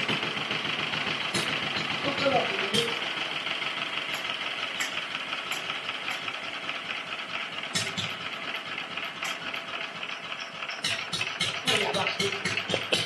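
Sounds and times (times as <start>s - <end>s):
stationary engine running: 0.0s - 13.0s.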